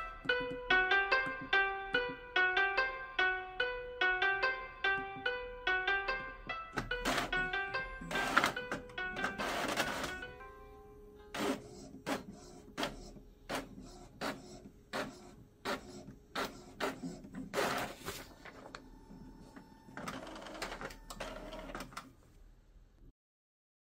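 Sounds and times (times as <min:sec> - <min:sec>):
printer whirring: 0:06.8 - 0:10.2, 0:11.3 - 0:22.0
printer clicking: 0:06.8 - 0:10.3, 0:11.4 - 0:22.1
inkjet printer running: 0:07.0 - 0:10.2, 0:11.4 - 0:21.9.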